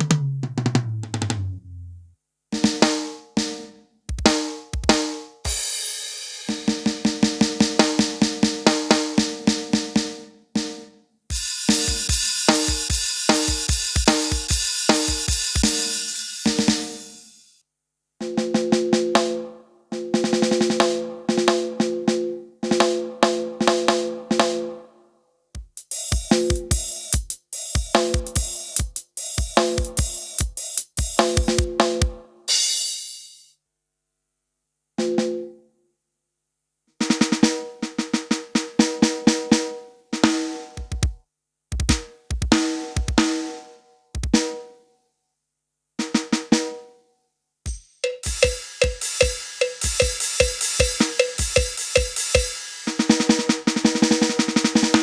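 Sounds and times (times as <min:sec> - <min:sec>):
keyboard drum rhythm pattern: 0:00.0 - 0:01.6, 0:02.6 - 0:10.0, 0:11.3 - 0:17.3, 0:25.6 - 0:33.4, 0:37.1 - 0:43.5, 0:44.2 - 0:44.6, 0:47.7 - 0:55.0.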